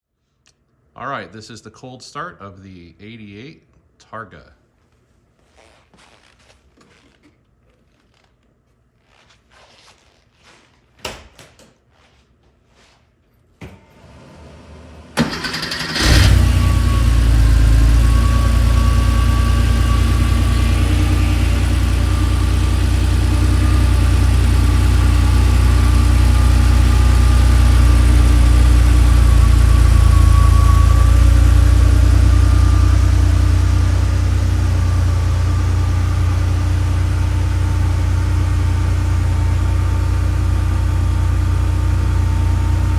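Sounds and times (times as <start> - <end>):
car engine starter cranking: 13.7 - 19.4
car engine idling: 14.0 - 42.9.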